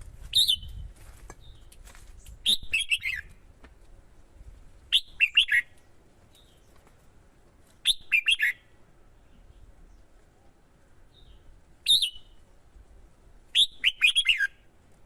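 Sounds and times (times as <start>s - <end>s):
bird singing short phrases: 0.3s - 0.8s, 2.4s - 3.3s, 4.9s - 5.8s, 7.8s - 10.1s, 11.1s - 12.4s, 13.6s - 14.7s.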